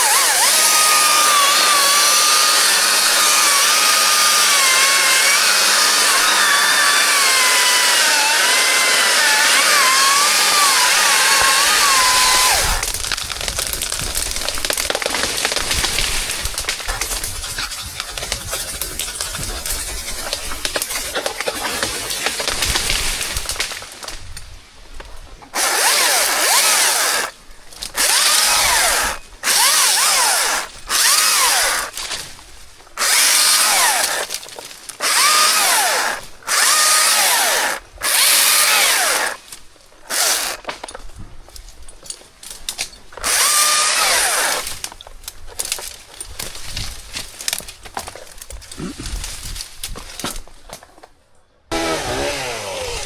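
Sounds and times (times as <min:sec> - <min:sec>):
chainsaw cutting wood: 0:00.0 - 0:23.8, 0:25.5 - 0:32.3, 0:33.0 - 0:39.5, 0:40.1 - 0:40.8, 0:43.1 - 0:45.0, 0:51.7 - 0:53.0.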